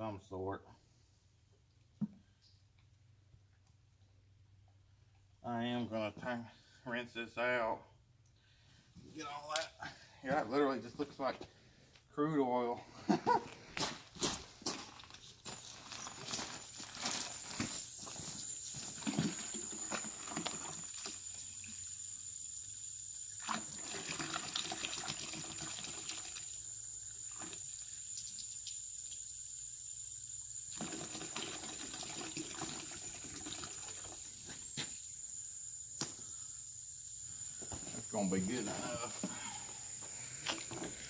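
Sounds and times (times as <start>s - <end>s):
water running from a tap: 18.0s - 35.6s.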